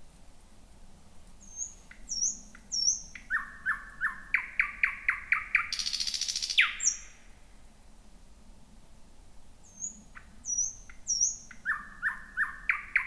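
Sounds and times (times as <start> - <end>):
bird singing: 1.4 - 7.2, 9.7 - 13.0.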